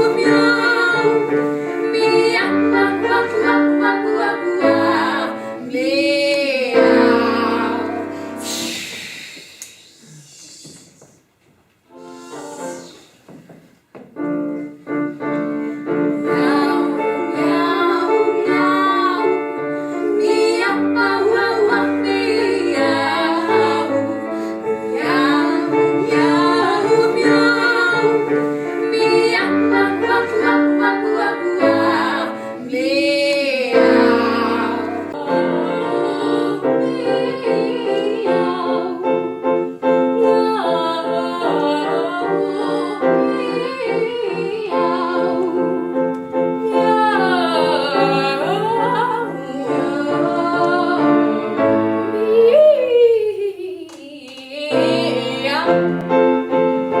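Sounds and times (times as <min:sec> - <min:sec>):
piano accompaniment: 0:00.0 - 0:09.3, 0:11.8 - 0:52.8, 0:54.6 - 0:57.0
woman singing operatically: 0:40.2 - 0:45.8, 0:46.6 - 0:51.4, 0:52.2 - 0:55.8.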